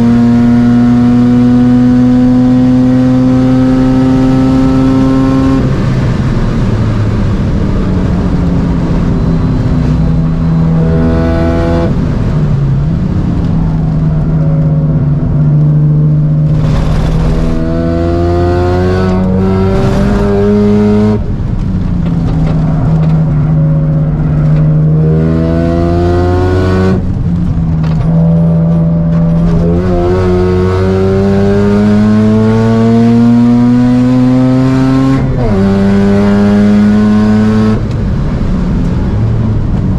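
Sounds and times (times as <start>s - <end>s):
rotary engine revving hard: 16.5s - 21.2s, 24.7s - 27.0s, 29.3s - 37.8s.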